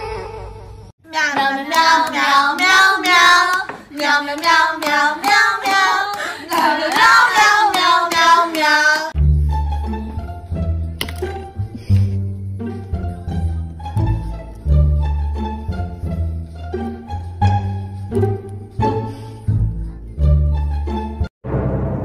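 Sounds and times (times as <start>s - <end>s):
high child-like voice singing: 1.0s - 9.1s.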